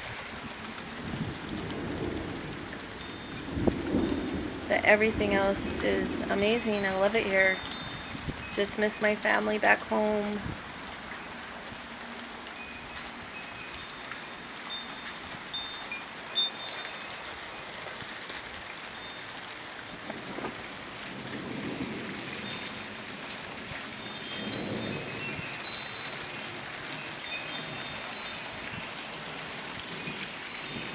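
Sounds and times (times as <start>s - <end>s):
steady rain: 0.0s - 30.9s
distant thunder rumbles: 1.0s - 8.6s, 20.0s - 27.1s.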